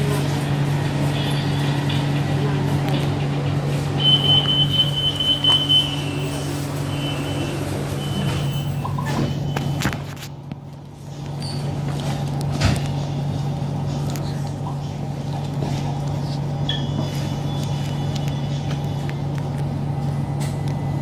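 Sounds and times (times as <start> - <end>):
electric train humming: 0.0 - 9.0.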